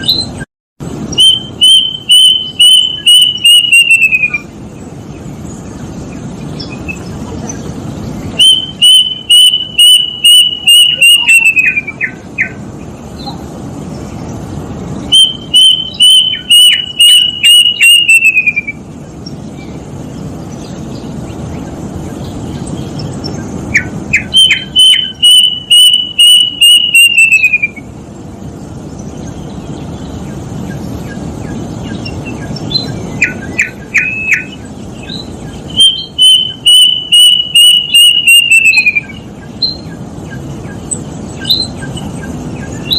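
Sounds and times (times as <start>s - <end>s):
cuckoo whistled notes: 1.2s - 4.5s, 8.4s - 12.6s, 15.1s - 18.8s, 23.8s - 27.9s, 35.8s - 39.8s.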